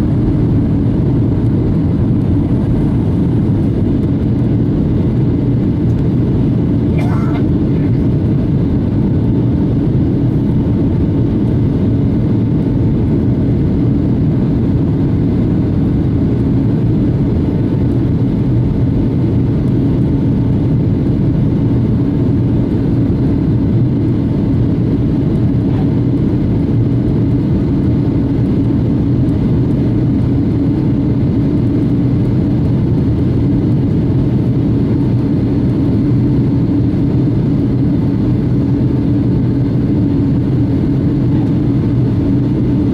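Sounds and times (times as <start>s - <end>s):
faint steady hum: 0.0s - 13.2s
jet engine cabin rumble: 0.0s - 42.9s.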